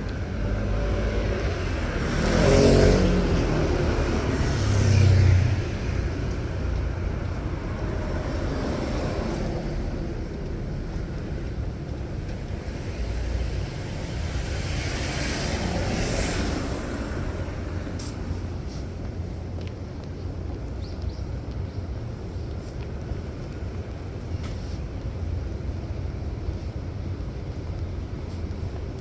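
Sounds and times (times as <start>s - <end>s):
low rumble of traffic: 0.0s - 29.0s
vehicle passing close: 0.4s - 6.7s, 12.3s - 18.6s.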